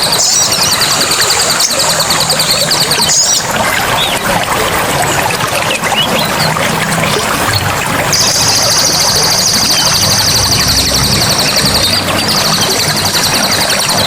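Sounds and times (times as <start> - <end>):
bird chirps: 0.0 - 4.2, 7.4 - 14.0
water pouring and splashing: 0.0 - 14.0.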